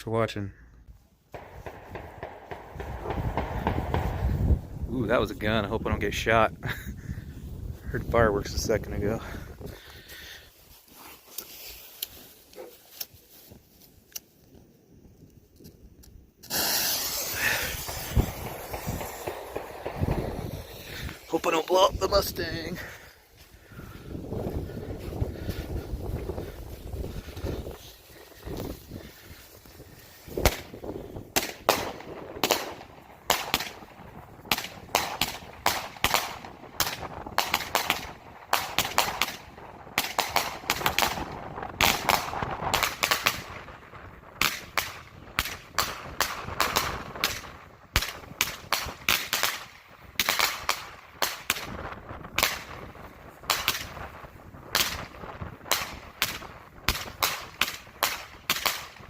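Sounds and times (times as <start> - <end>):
fireworks bangs: 1.3 - 6.7, 16.4 - 23.4, 24.1 - 59.0.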